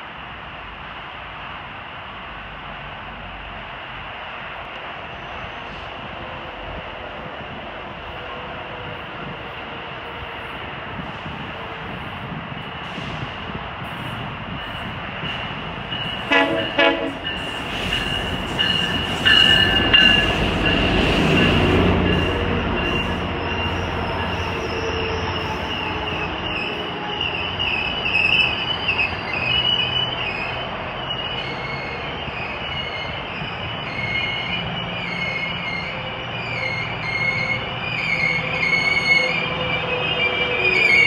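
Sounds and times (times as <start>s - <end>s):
diesel locomotive rumbling: 0.0s - 41.0s
wheel and brake squeal: 15.9s - 41.0s
train horn blasts: 16.2s - 17.4s.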